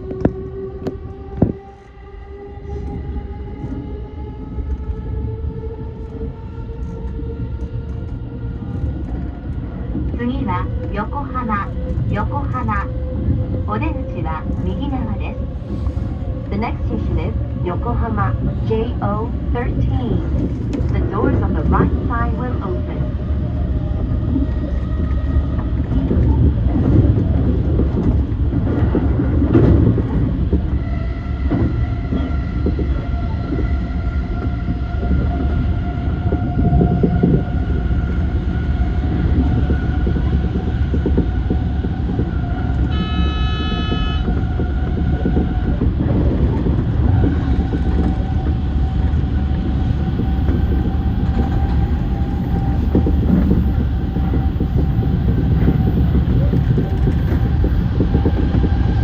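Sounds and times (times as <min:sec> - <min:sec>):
electric train running: 0:00.0 - 0:59.0
train horn: 0:42.8 - 0:44.8.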